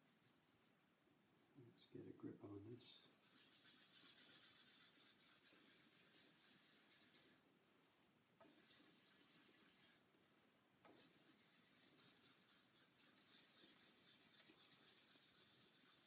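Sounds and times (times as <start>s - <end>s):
sandpaper rubbing: 3.2s - 7.4s, 8.4s - 10.0s, 10.9s - 16.0s.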